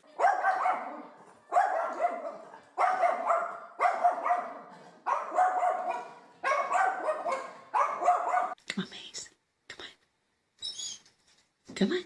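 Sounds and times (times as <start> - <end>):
dog barking: 0.1 - 8.6.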